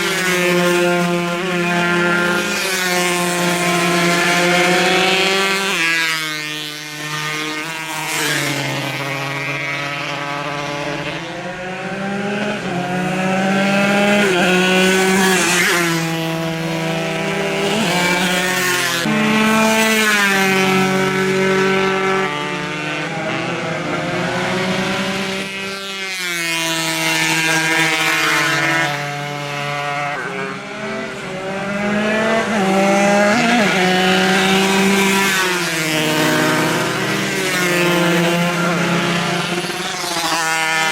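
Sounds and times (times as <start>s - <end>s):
racing motorcycles revving: 0.0s - 40.9s.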